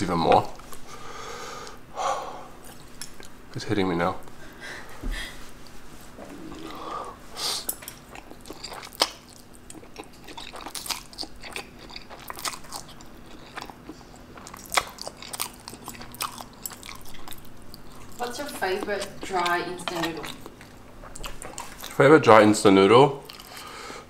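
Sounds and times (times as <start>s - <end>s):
noodles slurped and chewed: 7.9s - 18.2s.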